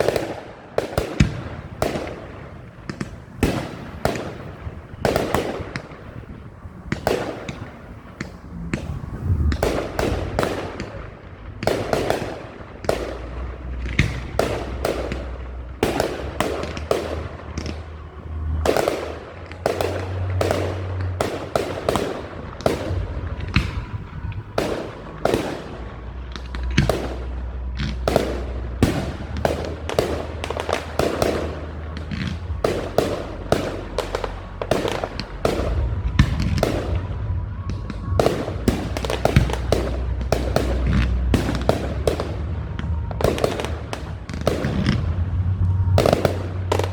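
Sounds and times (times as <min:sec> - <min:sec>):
fireworks bangs: 0:00.0 - 0:46.9
low rumble: 0:00.0 - 0:46.9.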